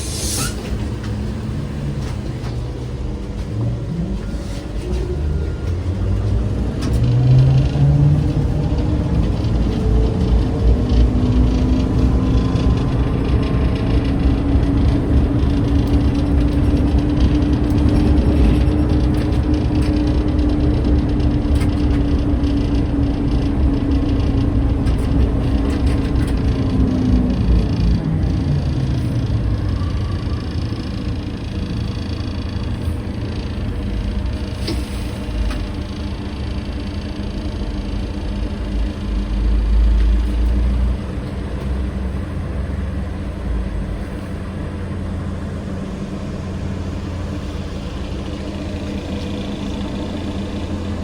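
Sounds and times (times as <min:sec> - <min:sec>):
road rumble: 0:00.0 - 0:51.0.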